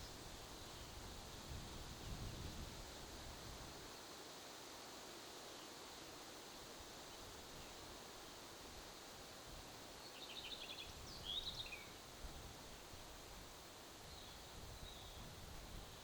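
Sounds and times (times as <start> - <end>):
bird song: 0.0 - 1.1, 10.0 - 12.0, 14.0 - 16.0
wind and rustling: 0.0 - 16.0.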